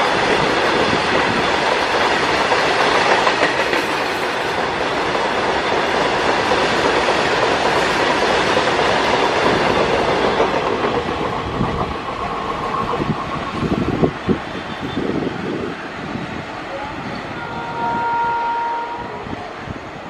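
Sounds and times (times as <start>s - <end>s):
wheels clattering over rail joints: 0.8s - 14.1s.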